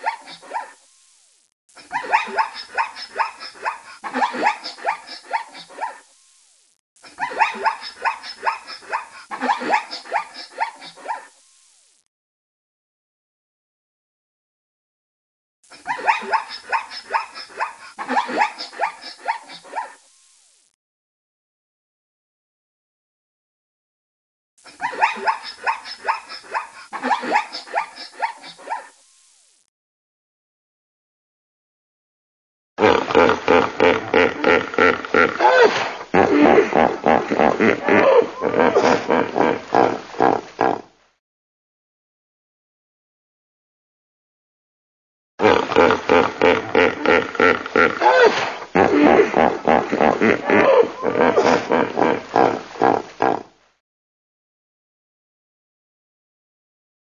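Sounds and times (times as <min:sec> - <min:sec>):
dog barking: 0:07.2 - 0:11.3, 0:15.9 - 0:20.0
small dog yapping: 0:35.4 - 0:35.8, 0:48.0 - 0:48.6.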